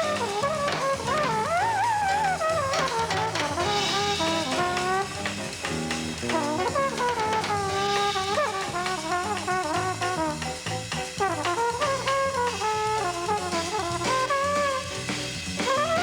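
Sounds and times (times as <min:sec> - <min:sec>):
bass line: 0:00.0 - 0:16.0
brass horn melody: 0:00.0 - 0:16.0
drums: 0:00.0 - 0:16.0.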